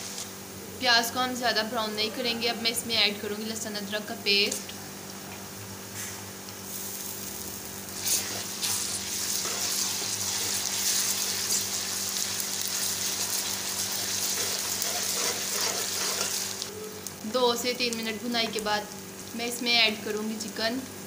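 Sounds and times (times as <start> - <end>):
onions sizzling in hot oil: 6.6 - 21.0.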